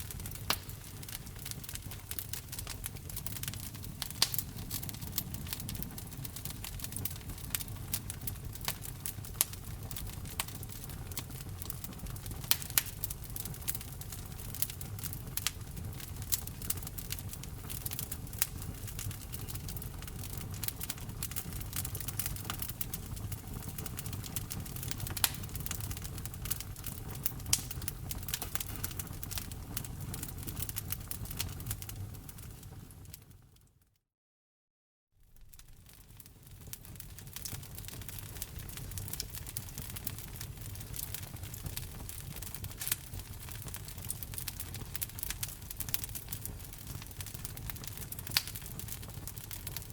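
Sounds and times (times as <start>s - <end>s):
wood fire crackling: 0.0s - 33.6s, 35.3s - 49.9s.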